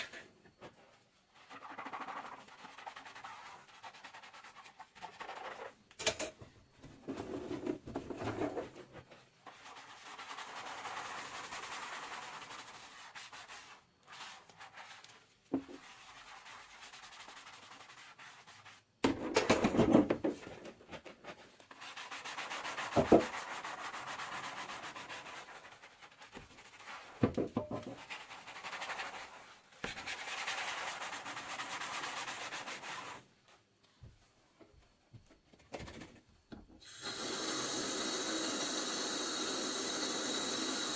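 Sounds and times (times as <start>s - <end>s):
sponge scrubbing dishes: 1.3s - 5.8s, 7.1s - 18.9s.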